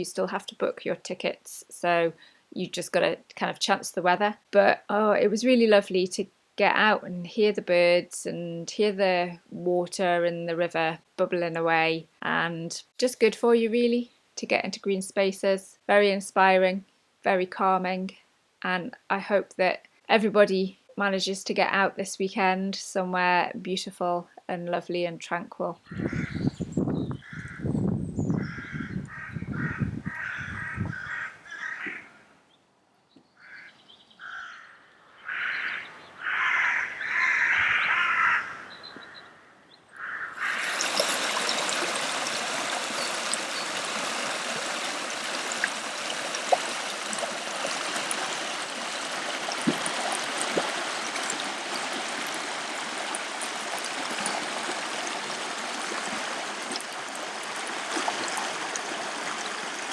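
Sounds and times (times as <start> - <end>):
birds calling: 25.8 - 32.2, 33.1 - 47.1
river bubbling over stones: 40.4 - 59.9.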